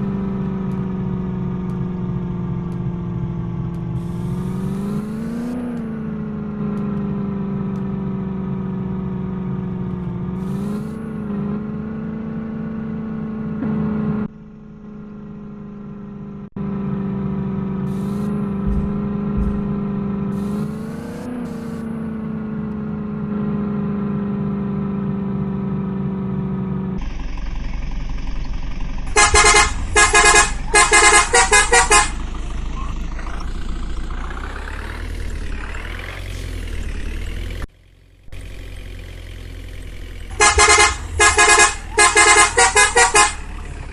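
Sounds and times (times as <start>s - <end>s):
diesel engine running: 0.0s - 43.9s
vehicle horn short toots: 29.1s - 32.2s, 40.3s - 43.6s.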